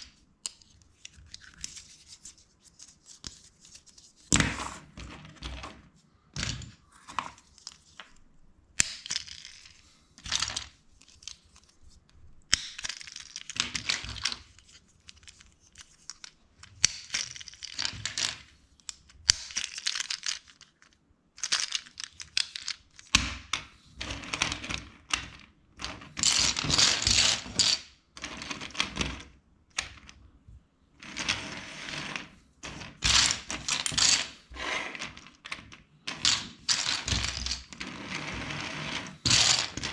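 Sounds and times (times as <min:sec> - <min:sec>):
plastic bricks clicking and clattering: 0:12.5 - 0:23.2, 0:24.0 - 0:30.2, 0:32.1 - 0:38.0, 0:39.0 - 0:39.9.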